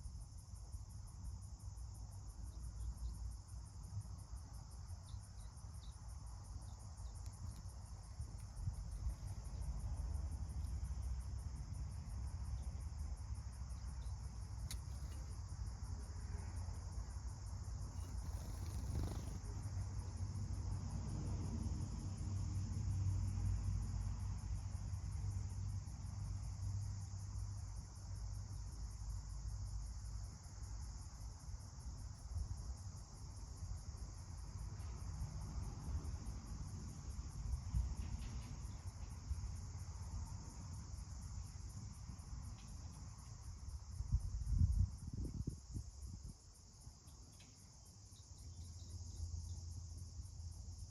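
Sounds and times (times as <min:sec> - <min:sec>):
insects chirping: 0:00.0 - 0:50.9
steady high hiss: 0:17.9 - 0:19.7.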